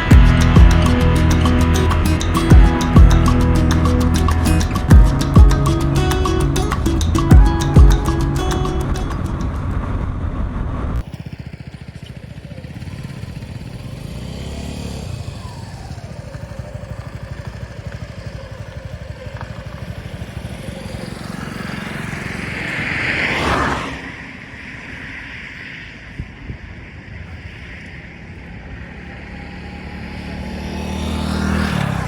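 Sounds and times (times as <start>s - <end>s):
music: 0.0s - 9.7s
motorcycle engine cruising: 0.0s - 25.9s, 26.7s - 32.0s.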